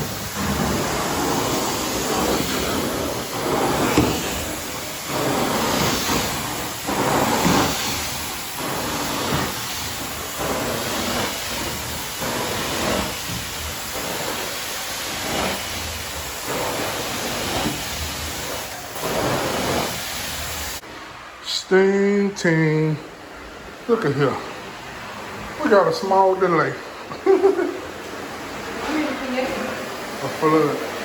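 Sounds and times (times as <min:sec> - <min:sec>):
carpet cleaning machine spraying: 0:00.0 - 0:20.8, 0:27.3 - 0:31.0.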